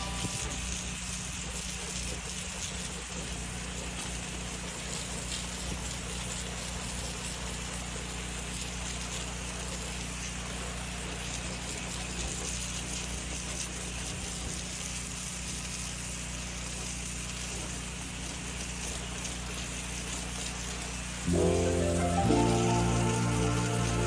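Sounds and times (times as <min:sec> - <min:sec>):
water spray hissing: 0:00.0 - 0:01.4.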